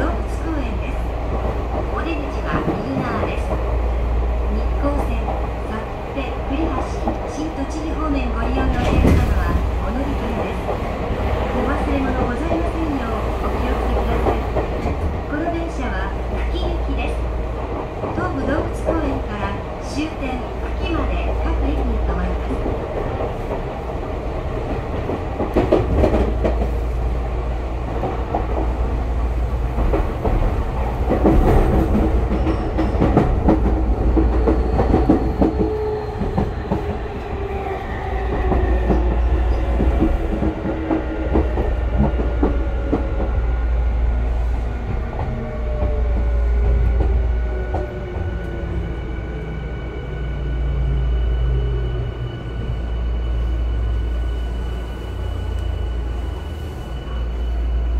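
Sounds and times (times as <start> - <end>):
low train rumble: 0.0 - 57.9.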